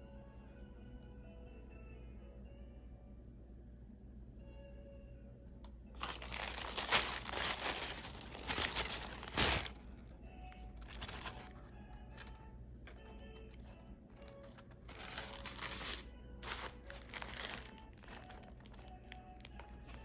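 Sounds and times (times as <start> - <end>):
packaging crinkling and tearing: 6.0 - 10.1, 10.7 - 12.4, 13.0 - 20.0.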